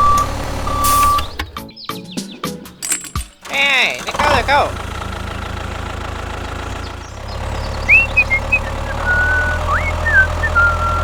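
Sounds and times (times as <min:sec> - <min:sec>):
steady engine hum: 0:00.0 - 0:01.8, 0:02.5 - 0:11.0
high chirping glides: 0:06.8 - 0:11.0.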